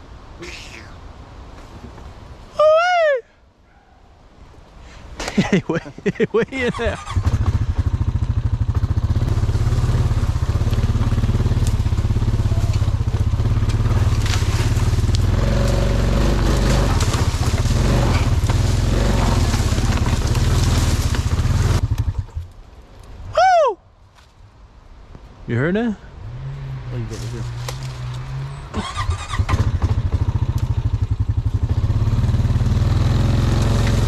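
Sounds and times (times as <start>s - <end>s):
atv engine running: 6.5s - 22.5s, 28.8s - 34.0s.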